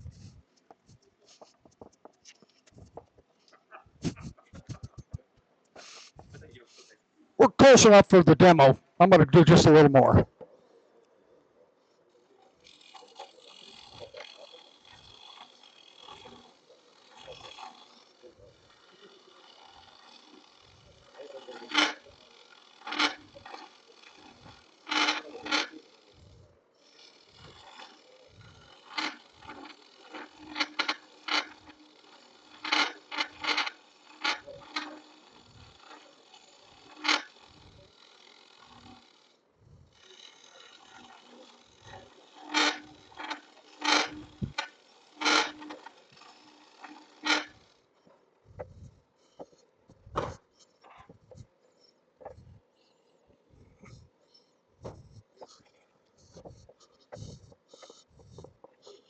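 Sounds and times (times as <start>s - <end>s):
wood lathe running: 12.0s - 49.7s, 50.3s - 59.0s
lathe tool scraping wood: 12.3s - 59.0s.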